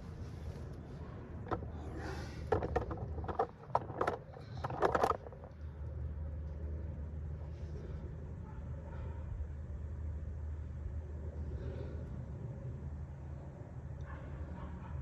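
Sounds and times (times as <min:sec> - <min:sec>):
low steady hum: 0:00.0 - 0:14.9
sharp clicks and knocks: 0:01.4 - 0:01.8, 0:02.4 - 0:05.6.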